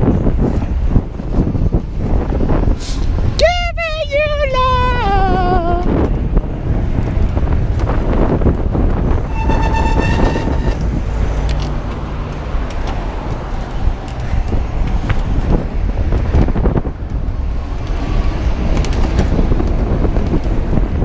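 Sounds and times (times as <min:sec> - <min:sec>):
traffic noise: 0:00.0 - 0:21.0
wind buffeting microphone: 0:00.0 - 0:21.0
vehicle horn: 0:09.2 - 0:11.1.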